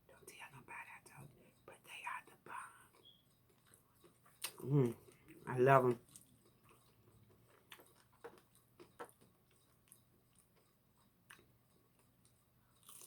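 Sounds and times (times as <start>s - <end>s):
chewing and mouth smacks: 2.3s - 13.0s.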